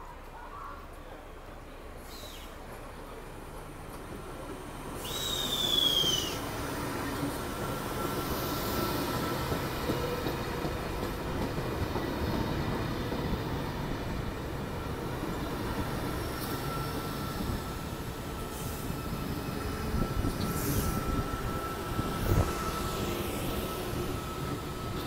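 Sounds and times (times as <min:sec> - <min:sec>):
train wheels rumbling on rails: 0:00.9 - 0:25.0.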